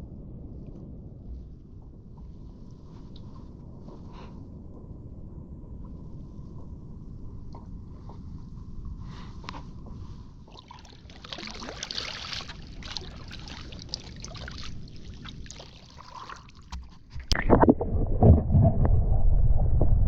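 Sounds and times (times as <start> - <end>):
water sloshing against kayak: 10.2 - 18.3
sudden loud rumble: 17.4 - 20.0.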